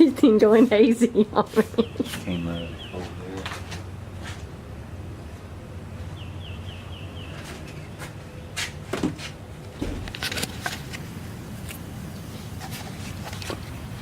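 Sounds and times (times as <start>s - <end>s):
bird chirping: 1.8s - 3.4s, 6.1s - 7.9s
sharp clicks and knocks: 9.0s - 11.8s.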